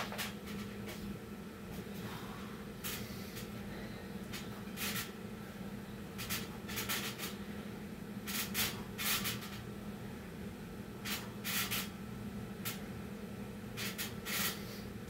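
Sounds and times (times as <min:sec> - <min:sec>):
steady low hum: 0:00.0 - 0:15.0
hard breathing: 0:01.7 - 0:05.7.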